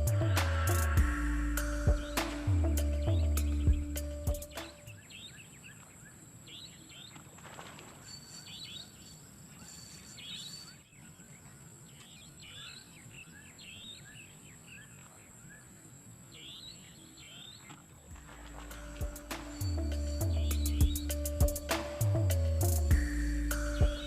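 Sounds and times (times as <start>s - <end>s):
thin steady high tone: 0.0s - 4.7s, 8.0s - 10.9s, 18.2s - 24.0s
faint outdoor background noise: 0.0s - 24.0s
small birds chirping: 0.0s - 24.0s.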